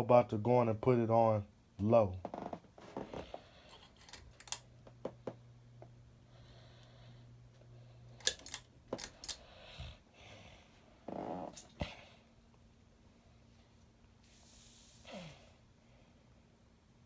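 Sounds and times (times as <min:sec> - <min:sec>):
ceiling fan clicks and ticks: 0:00.0 - 0:09.5
faint low hum: 0:00.0 - 0:17.0.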